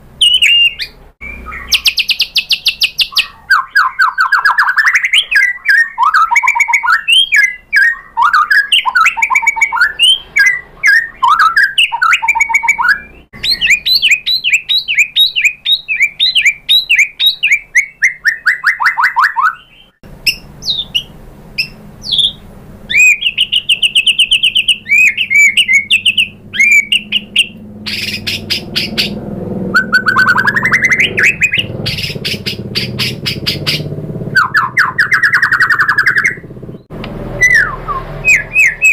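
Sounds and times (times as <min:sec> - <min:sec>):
songbird singing varied song: 0:00.1 - 0:38.9
low hum: 0:20.0 - 0:38.9.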